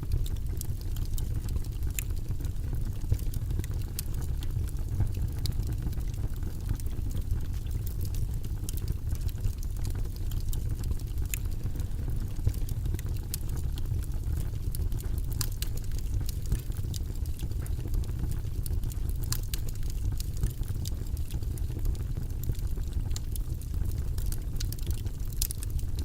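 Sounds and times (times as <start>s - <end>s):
low rumbling white noise: 0.0s - 26.0s.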